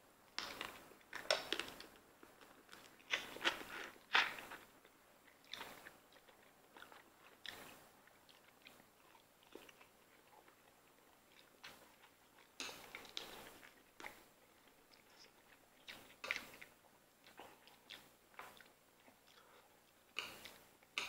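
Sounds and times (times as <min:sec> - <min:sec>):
faint chewing and biting: 0:00.3 - 0:21.0.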